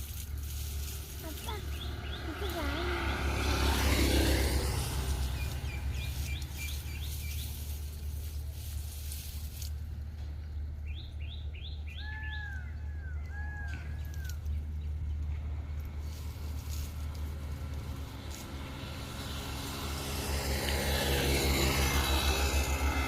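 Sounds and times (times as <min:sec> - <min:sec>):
small birds chirping: 0:01.2 - 0:08.2, 0:10.4 - 0:15.2.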